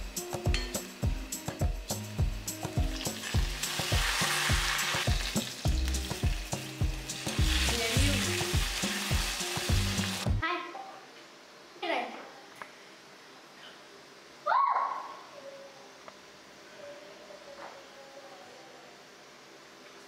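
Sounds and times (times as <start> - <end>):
music with a steady beat: 0.0 - 10.4
food sizzling in oil: 0.1 - 10.4.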